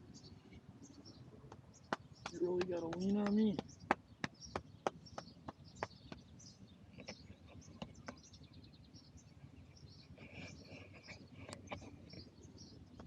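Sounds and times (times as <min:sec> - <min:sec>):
small birds chirping: 0:00.0 - 0:13.0
sharp taps: 0:01.5 - 0:06.3.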